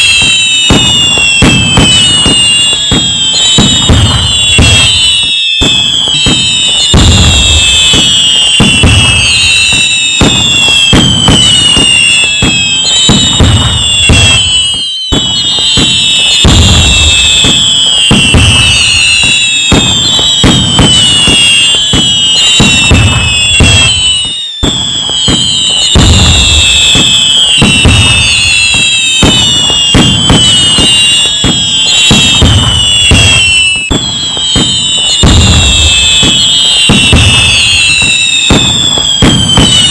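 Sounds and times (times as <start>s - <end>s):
crackling firework bursts: 0.0s - 39.9s
fireworks booms: 0.0s - 39.9s
whistling fireworks rockets: 0.0s - 39.9s.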